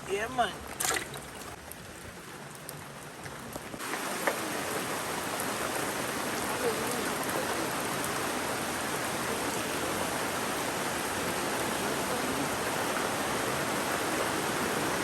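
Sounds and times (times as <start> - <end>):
rain falling: 0.0 - 15.0
river rushing: 3.8 - 15.0.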